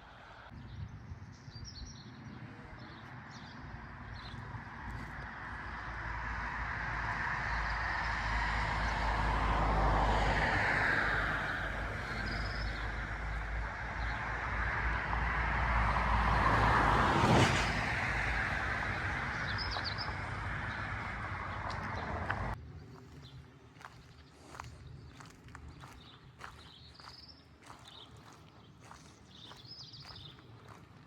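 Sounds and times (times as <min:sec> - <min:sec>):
vehicles driving past: 0:02.0 - 0:22.7.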